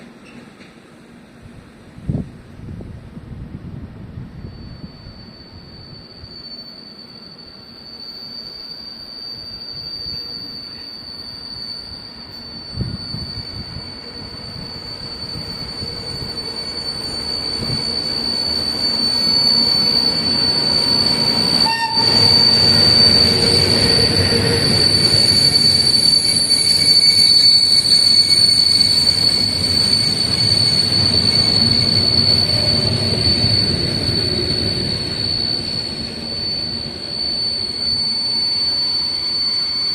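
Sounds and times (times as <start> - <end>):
train running past: 0.0 - 39.9
high-pitched wheel squeal: 4.4 - 39.9.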